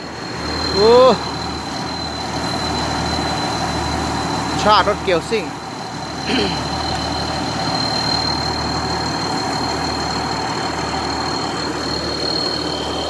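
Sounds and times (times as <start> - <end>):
diesel engine idling: 0.0 - 13.0
high-pitched whine: 0.0 - 13.0.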